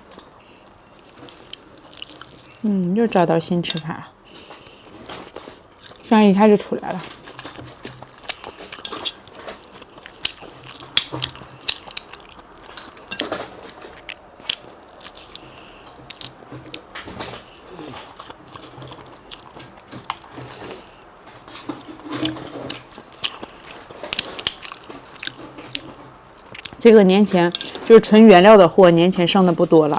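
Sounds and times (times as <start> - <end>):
biting and chewing seafood: 0.0 - 3.2, 3.8 - 28.0
sharp crunchy clicks: 7.0 - 26.8.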